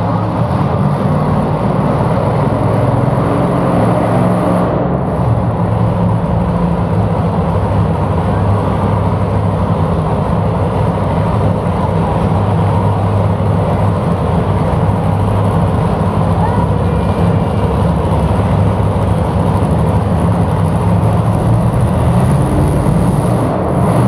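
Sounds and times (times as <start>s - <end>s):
vehicle engine droning: 0.0s - 24.0s.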